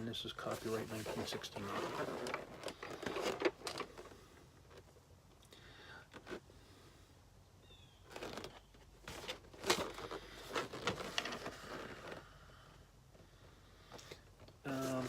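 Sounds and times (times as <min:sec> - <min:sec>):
package rustling and crinkling: 0:00.4 - 0:05.1, 0:07.9 - 0:13.2.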